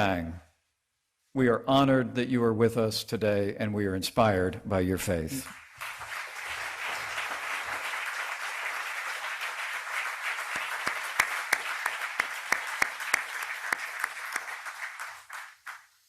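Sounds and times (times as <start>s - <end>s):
audience applauding: 5.4s - 16.0s.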